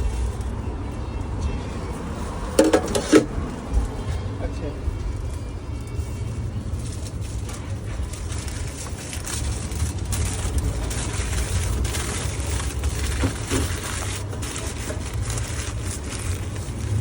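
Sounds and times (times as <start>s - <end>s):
food wrapper crinkling: 6.7s - 17.0s.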